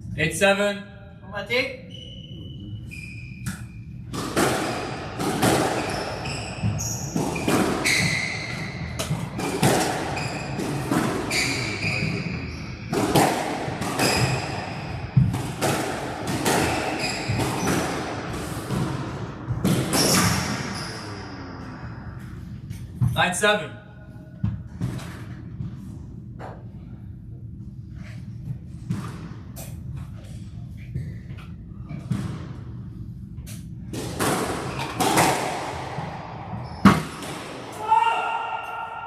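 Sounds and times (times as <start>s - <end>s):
shoes squeaking on floor: 1.9s - 4.0s, 5.7s - 9.4s, 10.1s - 12.9s, 14.0s - 15.0s, 16.5s - 17.8s, 19.9s - 21.3s, 36.6s - 37.1s
ball hitting walls: 4.1s - 20.7s, 33.9s - 37.8s
racquets striking ball: 4.1s - 20.7s, 33.9s - 37.8s.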